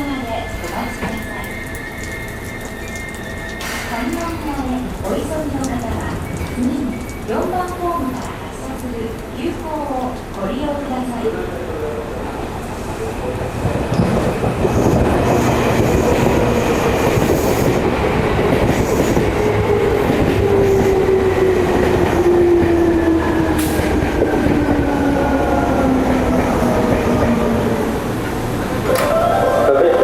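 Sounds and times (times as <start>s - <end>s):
train braking: 0.1s - 4.9s, 13.9s - 30.0s.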